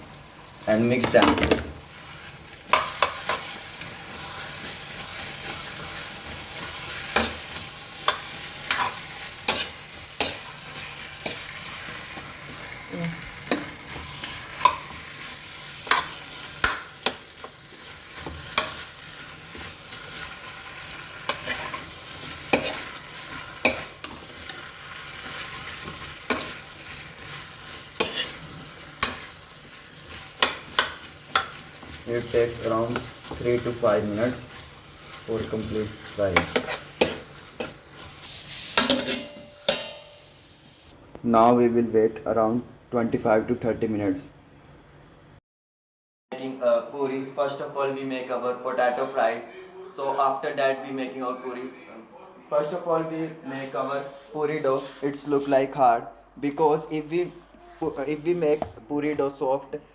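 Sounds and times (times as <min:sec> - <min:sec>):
potatoes sizzling in oil: 0:00.0 - 0:41.0
spatula knocking and scraping pan: 0:02.7 - 0:03.6, 0:05.4 - 0:11.5, 0:13.5 - 0:15.0, 0:15.8 - 0:18.9, 0:21.3 - 0:40.1.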